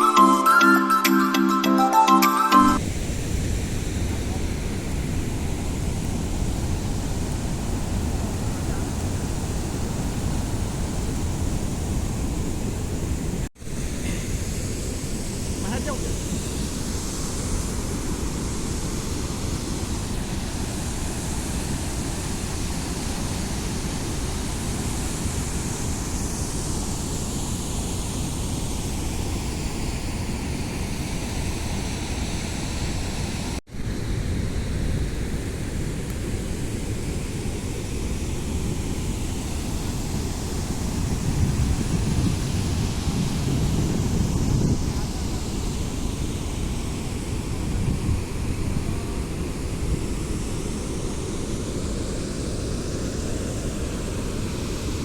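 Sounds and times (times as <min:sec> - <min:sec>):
wind buffeting microphone: 0:02.8 - 0:13.5, 0:33.8 - 0:51.7.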